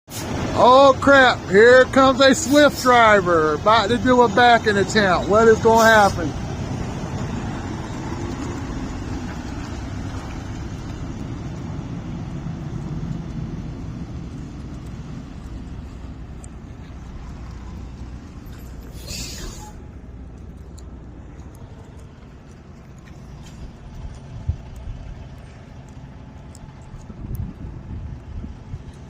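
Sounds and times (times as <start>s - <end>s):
truck diesel engine rumbling: 0.0s - 29.0s
air brake hiss: 0.1s - 0.4s, 18.9s - 19.8s.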